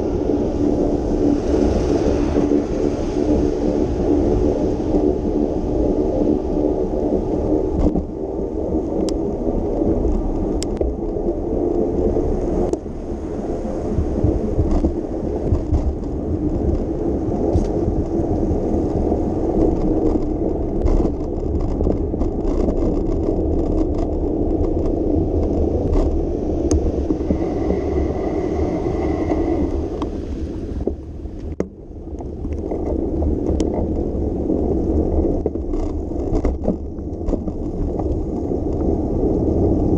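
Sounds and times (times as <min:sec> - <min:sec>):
bicycle tyres hissing on wet road: 0:00.0 - 0:21.9, 0:22.8 - 0:32.1
small clicks and rattles: 0:14.6 - 0:16.9, 0:17.5 - 0:26.8, 0:34.8 - 0:38.9.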